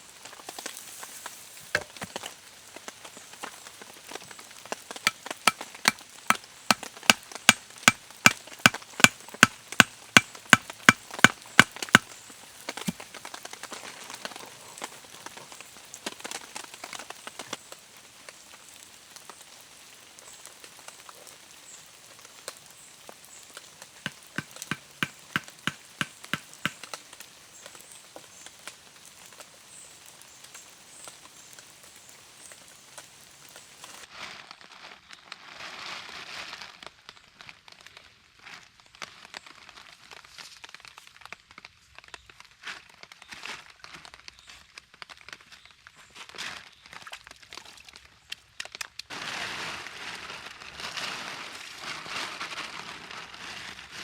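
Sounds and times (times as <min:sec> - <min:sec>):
wood being chopped: 0:01.8 - 0:02.1, 0:24.1 - 0:26.8
rain pattering: 0:13.2 - 0:34.0.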